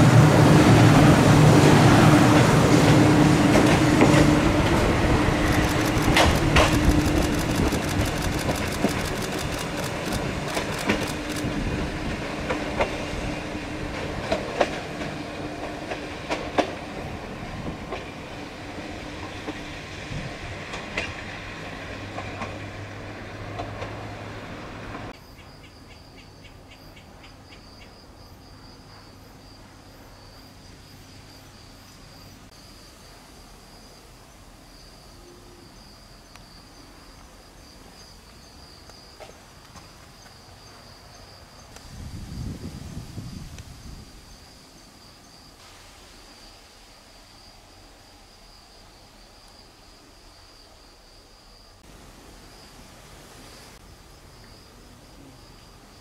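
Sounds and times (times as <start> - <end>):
train motor hum: 0.0 - 25.1
train wheels clacking over rail joints: 2.3 - 18.2, 20.6 - 24.1
high insect drone: 4.3 - 12.2, 25.1 - 56.0.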